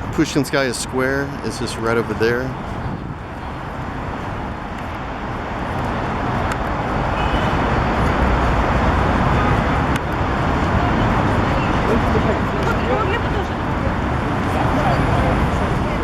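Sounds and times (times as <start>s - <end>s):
passing cars rumble and hiss: 0.0s - 16.0s.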